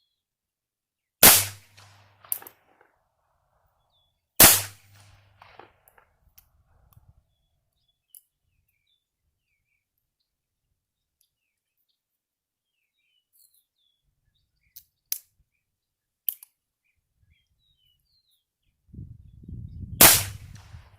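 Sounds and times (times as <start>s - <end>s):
gunshots: 1.2s - 2.6s, 4.4s - 5.8s, 20.0s - 20.9s
sharp gun click: 1.3s - 2.6s.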